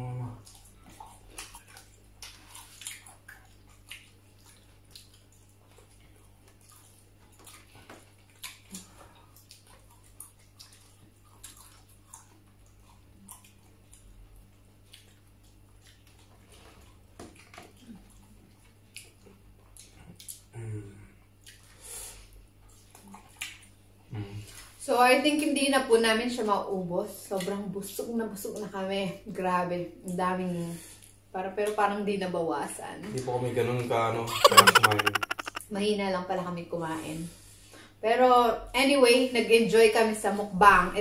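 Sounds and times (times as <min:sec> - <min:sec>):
chewing vegetables: 0:00.4 - 0:20.5.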